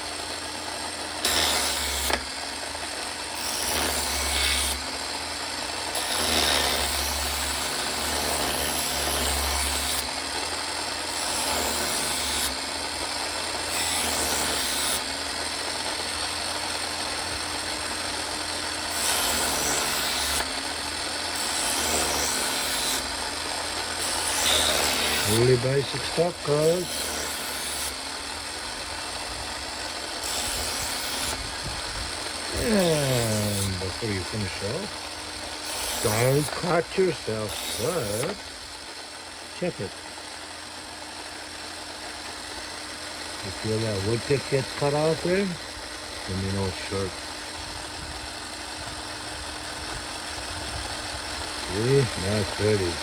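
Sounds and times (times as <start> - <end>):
knife sharpener motor running: 0.0 - 53.0
knife blade grinding: 32.3 - 38.5.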